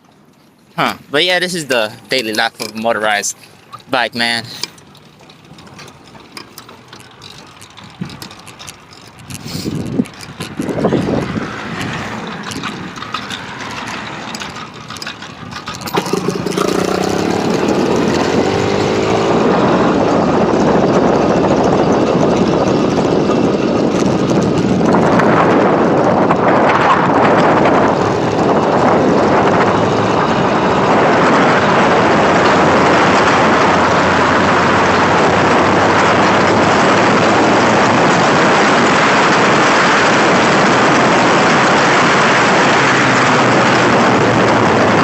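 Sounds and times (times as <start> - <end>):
motorized bicycle engine revving: 4.5 - 45.0.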